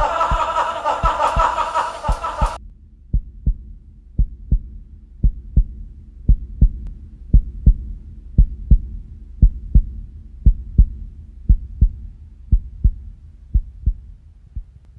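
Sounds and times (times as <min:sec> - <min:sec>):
heartbeat thumps: 0:00.0 - 0:14.8.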